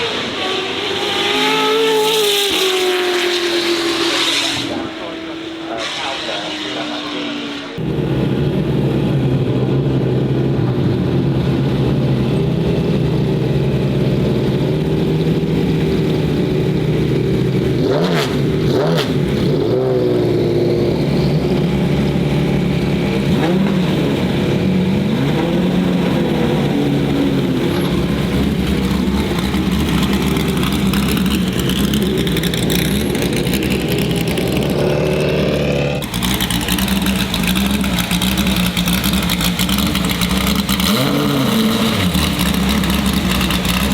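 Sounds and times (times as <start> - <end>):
engine revving: 0.0 - 43.9
loud vee eight engine idling: 26.2 - 43.9.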